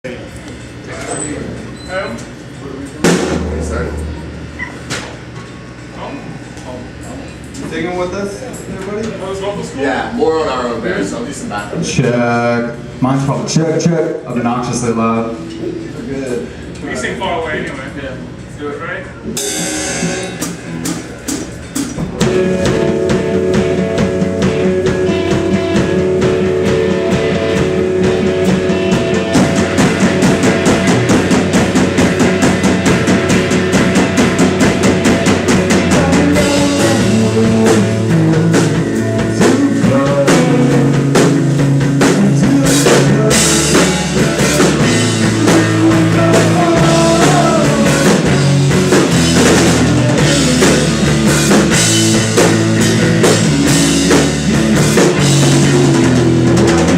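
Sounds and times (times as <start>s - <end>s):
live rock band playing: 3.0s - 5.4s, 19.2s - 56.9s.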